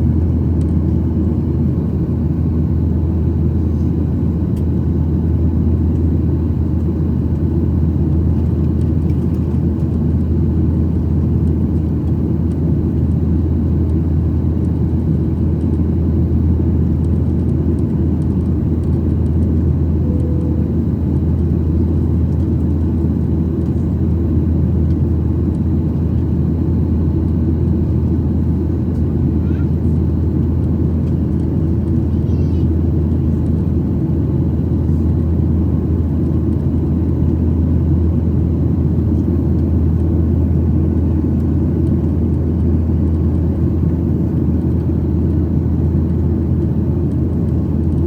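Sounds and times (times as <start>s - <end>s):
jet engine drone in cabin: 0.0s - 48.0s.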